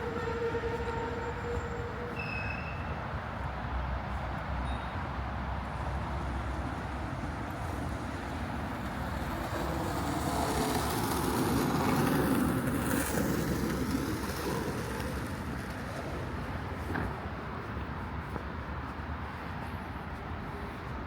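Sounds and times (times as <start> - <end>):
background traffic noise: 0.0 - 21.0
vehicle passing by: 8.7 - 15.5.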